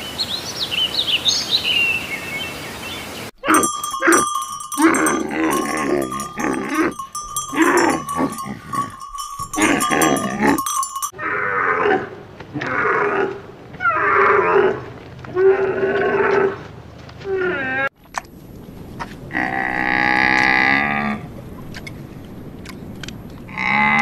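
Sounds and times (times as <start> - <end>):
camels calling: 3.4 - 11.1
chiming: 3.4 - 11.2
steady ringing tone: 3.6 - 11.1.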